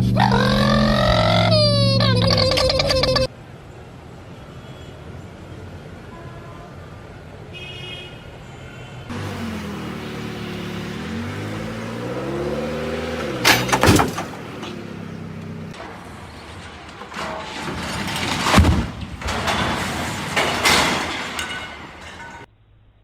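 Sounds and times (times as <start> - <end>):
road noise: 0.0 - 22.9
car engine running: 9.1 - 16.6
sharp knocks: 13.2 - 14.8
thumps: 13.2 - 14.9, 15.8 - 22.5.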